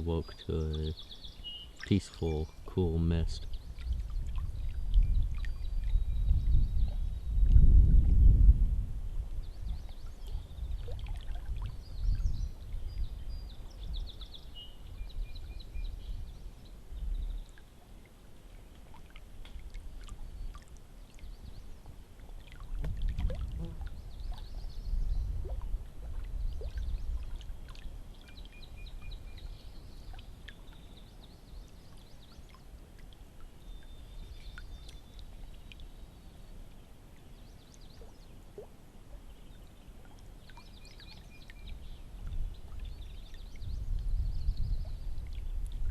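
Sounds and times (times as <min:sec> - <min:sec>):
birds singing: 0:00.0 - 0:07.4, 0:09.4 - 0:17.6, 0:23.6 - 0:25.4, 0:26.3 - 0:32.7, 0:33.5 - 0:36.5, 0:39.1 - 0:45.6.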